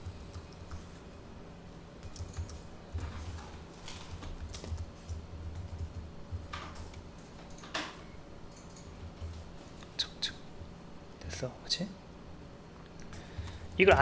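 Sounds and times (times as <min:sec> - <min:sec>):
typing on computer keyboard: 0:02.0 - 0:03.5, 0:04.1 - 0:09.3.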